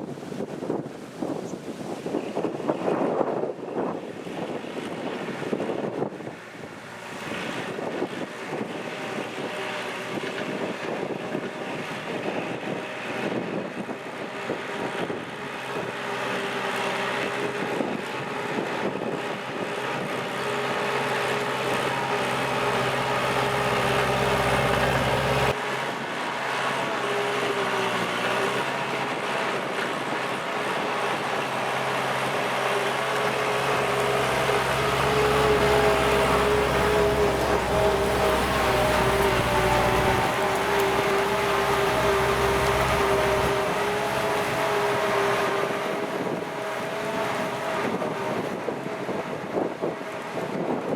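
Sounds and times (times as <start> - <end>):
tractor diesel engine running: 14.3 - 25.6, 26.4 - 50.4.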